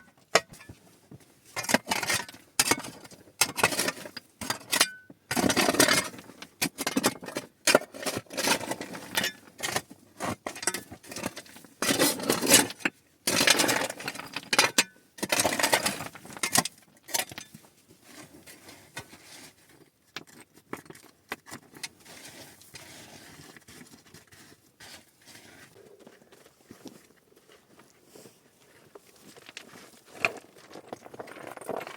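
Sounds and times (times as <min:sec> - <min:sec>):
scraping and rustling: 0:17.5 - 0:31.9.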